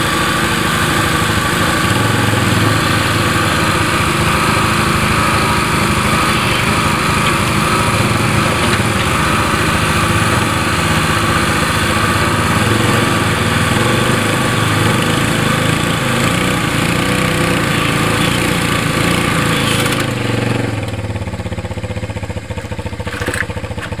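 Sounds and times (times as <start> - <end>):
hydraulic power pack running: 0.0 - 21.4, 22.6 - 24.0
small gas engine running: 0.0 - 24.0.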